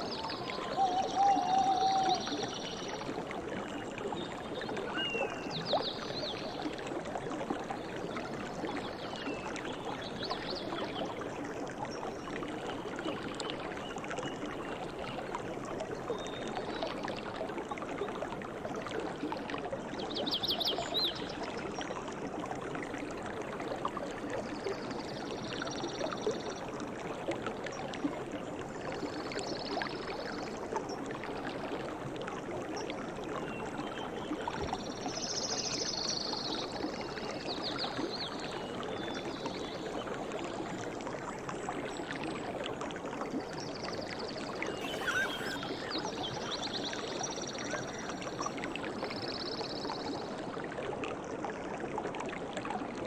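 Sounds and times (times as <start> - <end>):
stream water rushing: 0.0 - 5.6, 44.0 - 49.3.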